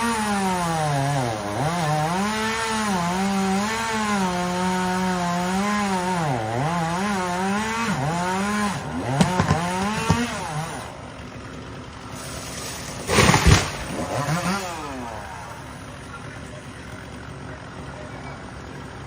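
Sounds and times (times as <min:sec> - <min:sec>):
chainsaw cutting wood: 0:00.0 - 0:19.0
wood cracking: 0:01.4 - 0:16.2
loud crash: 0:12.9 - 0:14.1.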